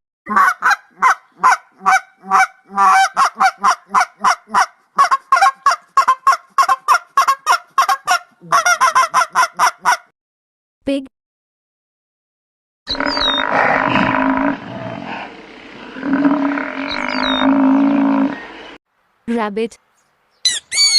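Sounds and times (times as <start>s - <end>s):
swans honking: 0.3s - 10.0s.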